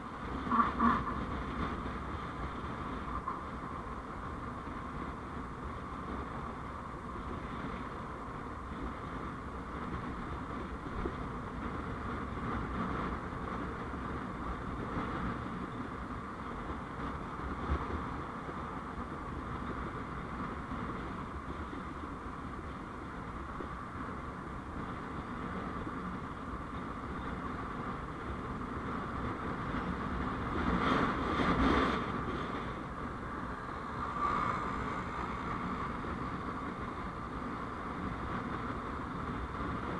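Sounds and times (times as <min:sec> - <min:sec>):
road and traffic drone: 0:00.0 - 0:39.9
vehicle passing close by: 0:33.3 - 0:37.0.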